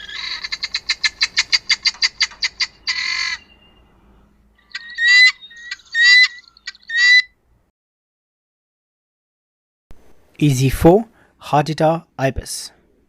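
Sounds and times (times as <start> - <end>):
guineafowl calling: 0.0 - 3.9, 4.6 - 7.3.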